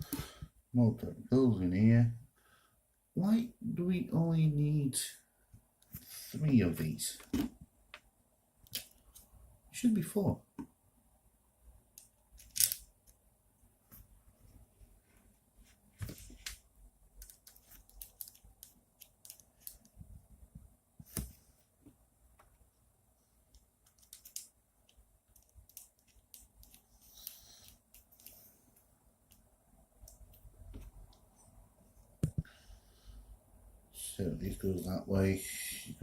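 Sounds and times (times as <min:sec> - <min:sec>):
small screws and parts clicking: 0:12.0 - 0:13.2, 0:17.2 - 0:19.9, 0:23.5 - 0:28.4.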